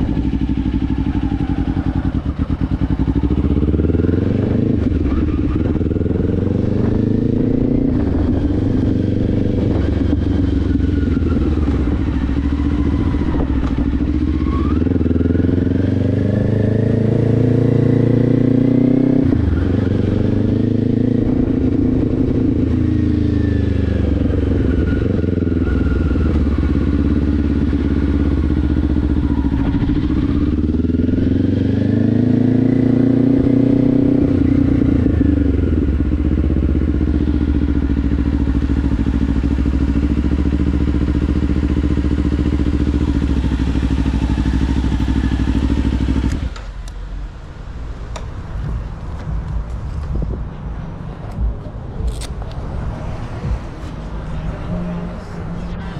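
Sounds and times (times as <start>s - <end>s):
motorcycle engine revving: 0.0s - 47.1s.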